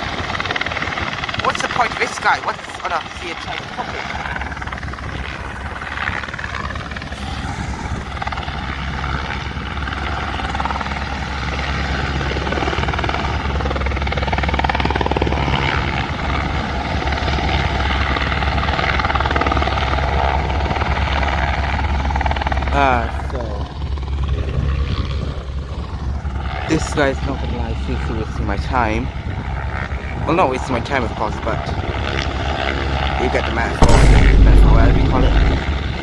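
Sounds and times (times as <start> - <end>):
helicopter rotor beating: 0.0 - 16.8, 32.1 - 36.0.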